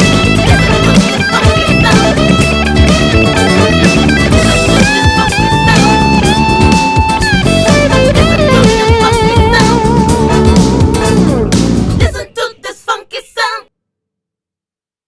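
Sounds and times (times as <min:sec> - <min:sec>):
electric guitar lead notes: 0:00.0 - 0:12.0
funk music: 0:00.0 - 0:12.3.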